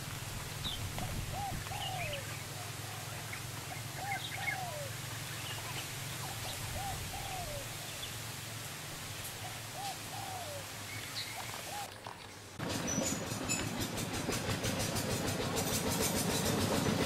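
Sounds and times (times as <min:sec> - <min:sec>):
bird calling: 0:00.6 - 0:08.2, 0:09.4 - 0:13.6.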